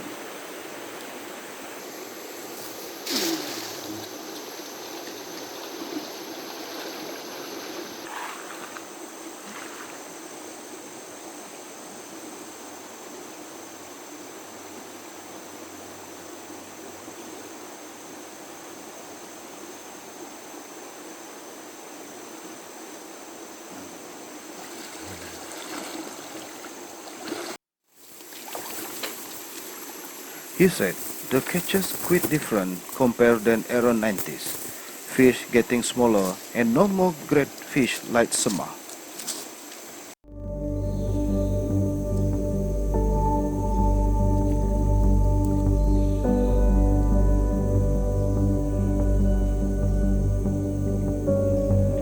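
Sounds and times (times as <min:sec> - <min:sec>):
river running over stones: 0:00.0 - 0:10.2, 0:23.9 - 0:40.1
water splash: 0:03.0 - 0:06.0, 0:24.5 - 0:30.0.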